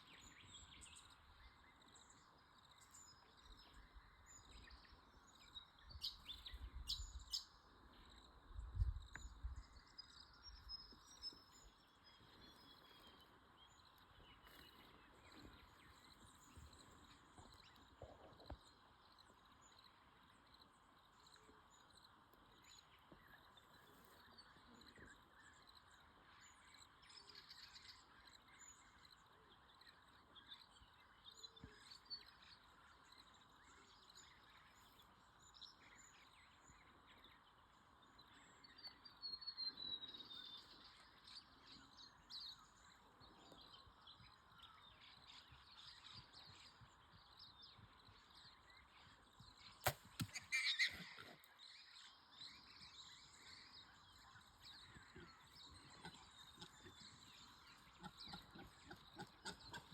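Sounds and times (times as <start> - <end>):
birds chirping: 0.0 - 59.9
bow shot snap: 49.8 - 51.0.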